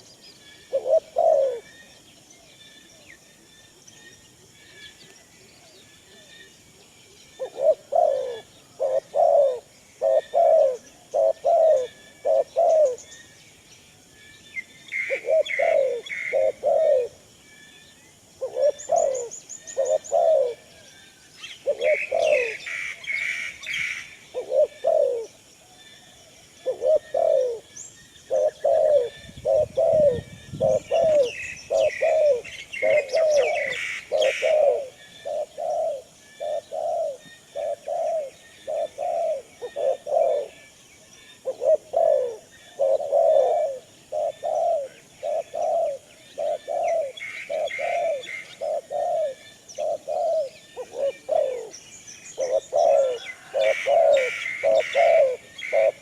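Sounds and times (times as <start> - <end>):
doves cooing: 0.6 - 2.1, 7.4 - 13.1, 14.6 - 17.4, 18.3 - 40.8, 41.4 - 56.0
higher bird chirping: 14.4 - 56.0.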